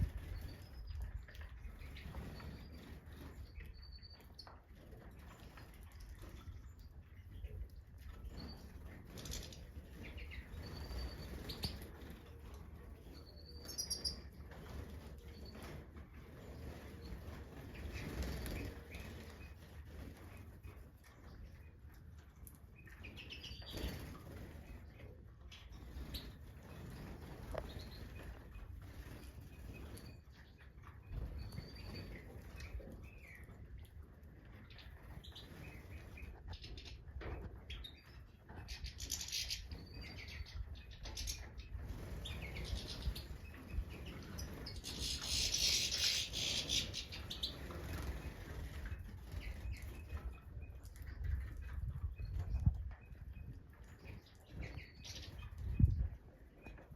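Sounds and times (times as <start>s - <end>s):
goldfinches chirping and twittering: 0.0s - 21.8s, 22.6s - 33.8s, 34.5s - 56.9s
goldfinch twittering: 8.2s - 12.0s, 13.1s - 14.8s, 37.6s - 48.7s
goldfinches chirping: 13.2s - 14.4s, 38.6s - 48.6s.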